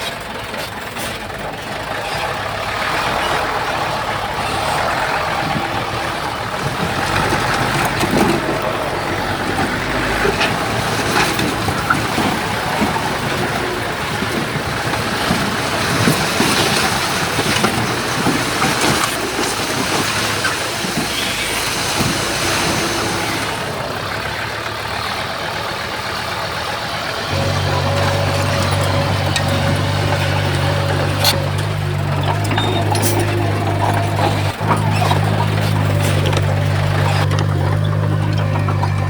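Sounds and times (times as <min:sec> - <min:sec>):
diesel machinery engine: 0:00.0 - 0:39.0
metallic clanks and knocks: 0:27.3 - 0:39.0.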